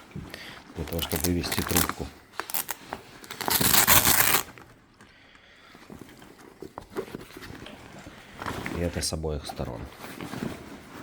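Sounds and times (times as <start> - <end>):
loud ripping: 0.8 - 4.6
backpack fabric rustling: 2.5 - 2.8, 3.4 - 4.4.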